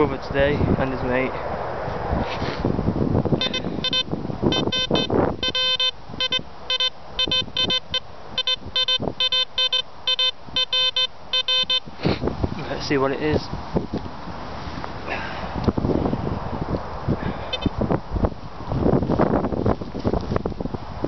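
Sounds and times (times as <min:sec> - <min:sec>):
wind buffeting microphone: 0:00.0 - 0:09.7, 0:10.4 - 0:21.0
metal detector beeps: 0:03.4 - 0:11.9, 0:17.5 - 0:17.7.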